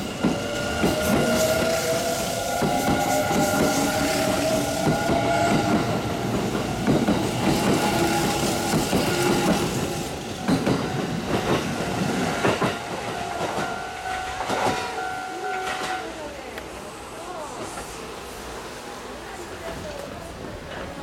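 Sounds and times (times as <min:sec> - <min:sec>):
wheels clacking over rail joints: 0:02.6 - 0:15.0.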